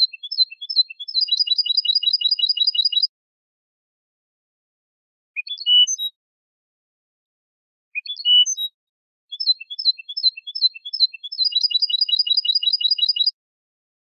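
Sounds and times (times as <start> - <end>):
goldfinch twittering and trilling: 0.0 - 3.1, 9.3 - 13.3.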